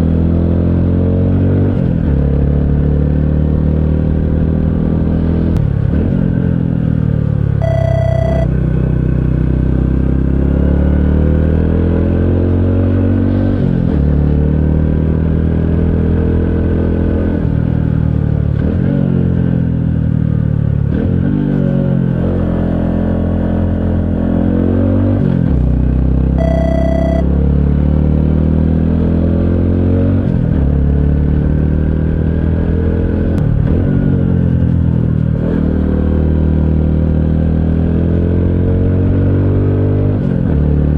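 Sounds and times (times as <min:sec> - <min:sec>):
short electronic beeps: 0:07.6 - 0:08.5, 0:26.4 - 0:27.2.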